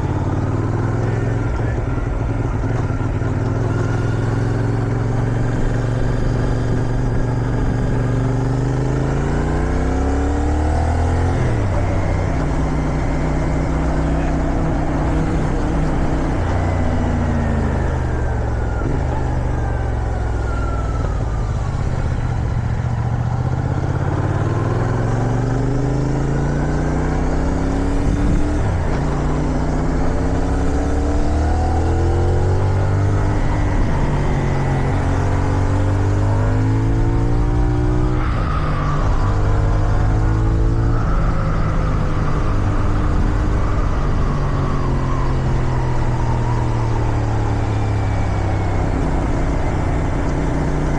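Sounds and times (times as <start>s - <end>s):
motorcycle engine accelerating: 0.0s - 50.9s
wind rush on microphone: 27.7s - 29.2s.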